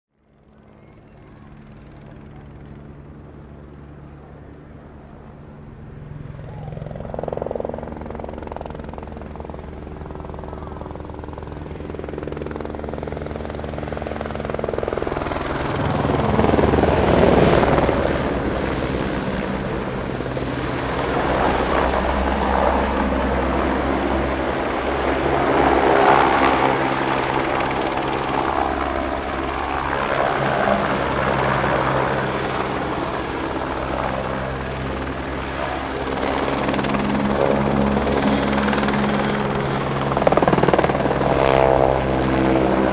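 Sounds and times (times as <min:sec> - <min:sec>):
engine drone: 0:13.4 - 0:42.9.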